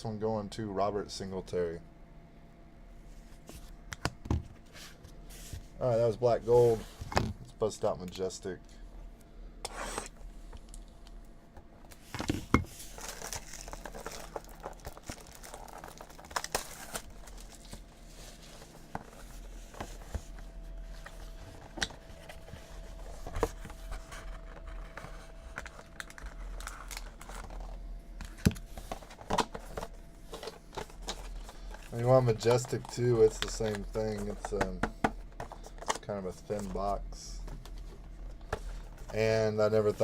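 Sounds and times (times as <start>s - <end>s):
plastic wrapping crinkling and tearing: 12.8s - 18.5s, 23.9s - 29.6s.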